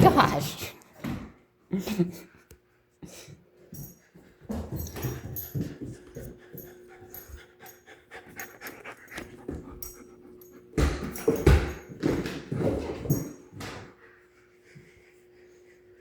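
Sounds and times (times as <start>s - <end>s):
puppy panting: 3.8s - 11.9s.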